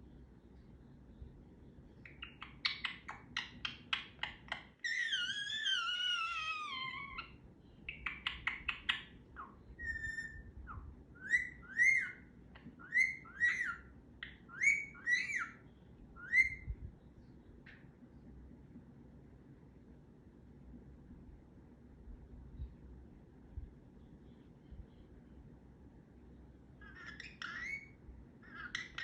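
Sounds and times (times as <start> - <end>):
parrot rising chirps: 2.0 - 15.6, 16.2 - 16.8, 26.8 - 29.0
parrot wavering whistle: 11.2 - 12.2, 12.8 - 13.9, 14.5 - 15.6, 16.2 - 16.7.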